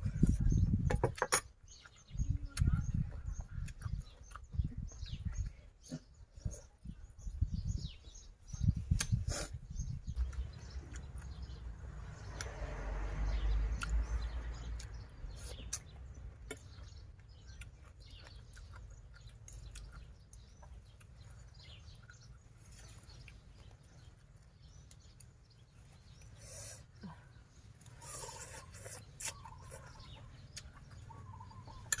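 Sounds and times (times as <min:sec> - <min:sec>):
chewing: 0:01.8 - 0:06.9, 0:13.8 - 0:32.0
mouth clicks: 0:28.0 - 0:32.0.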